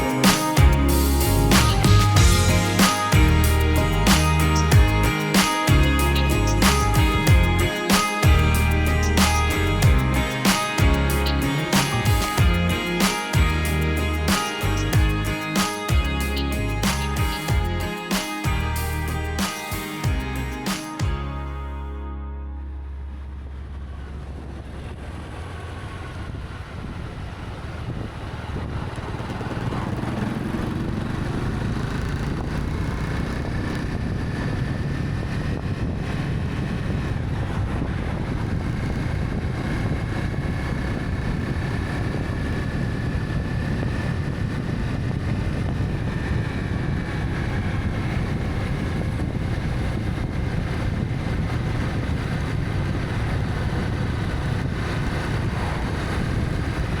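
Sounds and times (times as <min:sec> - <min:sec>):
motorcycle engine riding: 0:00.0 - 0:21.6, 0:23.2 - 0:57.0
wind rushing over microphone: 0:23.4 - 0:57.0.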